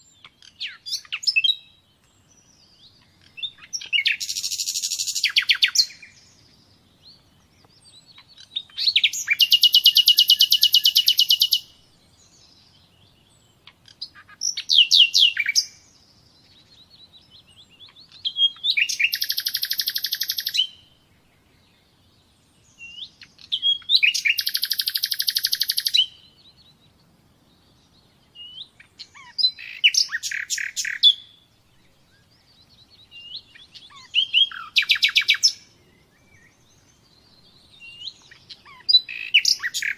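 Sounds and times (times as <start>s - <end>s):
songbird trilling: 0.0s - 21.0s, 22.7s - 26.7s, 27.7s - 31.4s, 32.1s - 39.9s.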